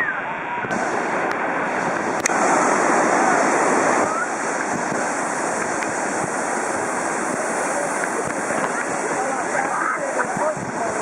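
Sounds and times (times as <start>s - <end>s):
whitewater roaring: 0.0s - 11.0s.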